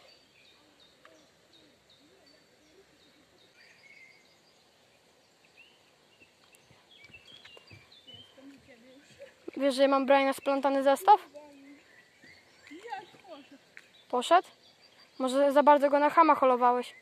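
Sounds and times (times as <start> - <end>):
small birds chirping: 0.0 - 17.0
faint clicks: 6.4 - 7.8, 12.6 - 14.1.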